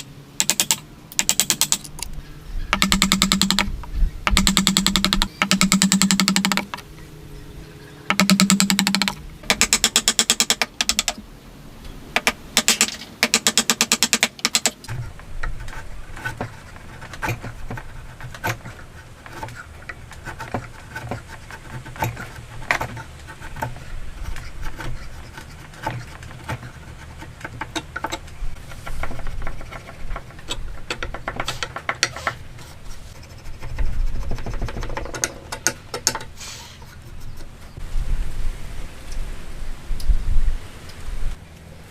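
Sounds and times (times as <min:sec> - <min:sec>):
rapid strokes on wood: 0:12.2 - 0:37.8.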